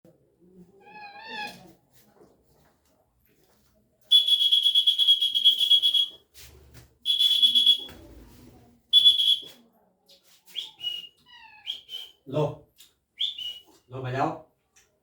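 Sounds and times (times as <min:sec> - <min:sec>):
shrill warbling whistle: 0:04.1 - 0:06.2, 0:07.1 - 0:07.9, 0:09.0 - 0:09.5.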